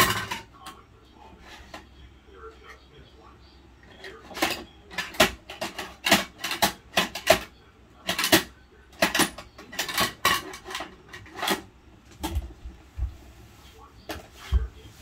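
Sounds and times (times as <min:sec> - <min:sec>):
toy plastic clattering and knocking: 0:00.0 - 0:00.8, 0:04.0 - 0:12.6.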